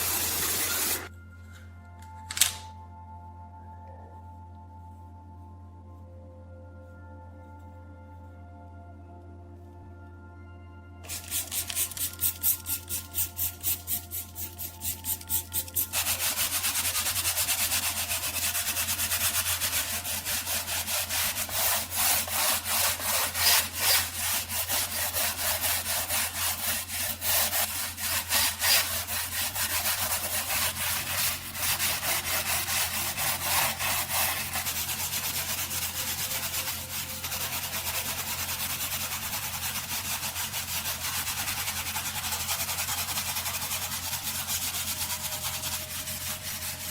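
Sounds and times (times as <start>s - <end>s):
abrasive rubbing strokes: 11.1s - 46.9s.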